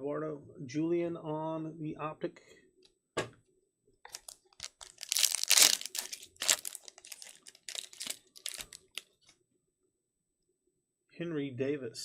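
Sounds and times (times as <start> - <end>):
foil wrapper tearing and crinkling: 4.1 - 9.0.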